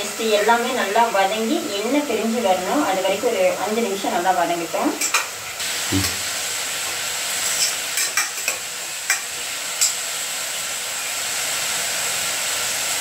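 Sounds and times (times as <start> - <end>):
food sizzling in hot oil: 0.0 - 13.0
metal spoon clinking on pan: 7.6 - 10.0.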